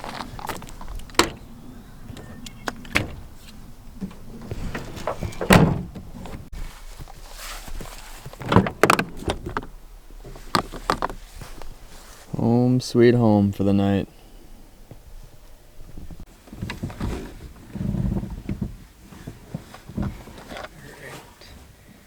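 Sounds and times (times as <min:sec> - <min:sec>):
pickup truck door and cab clunks: 0:00.0 - 0:06.5, 0:08.4 - 0:11.2.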